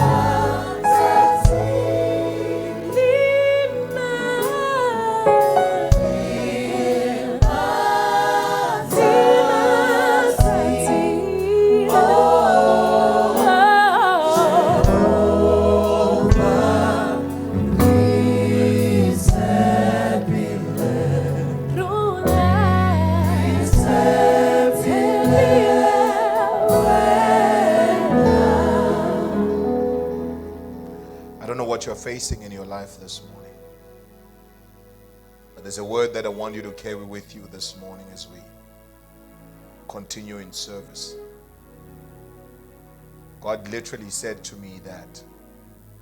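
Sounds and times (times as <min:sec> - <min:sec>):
band accompaniment: 0:00.0 - 0:03.0, 0:05.6 - 0:11.2, 0:14.4 - 0:31.1
choir singing: 0:00.0 - 0:31.8.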